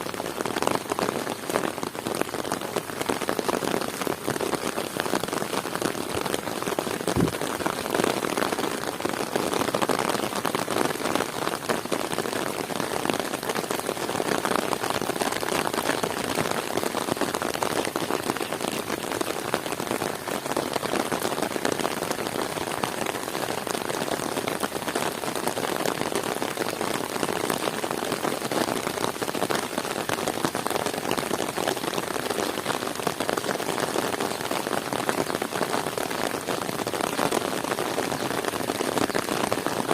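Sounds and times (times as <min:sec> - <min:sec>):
heavy rain falling: 0:00.0 - 0:39.9
low thump: 0:07.2 - 0:07.4.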